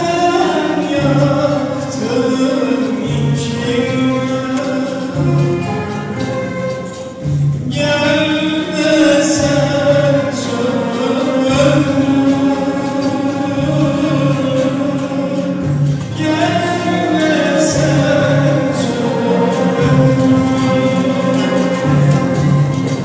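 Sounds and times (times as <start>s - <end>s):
instrumental ensemble playing: 0.0s - 23.0s
person singing: 0.0s - 23.0s.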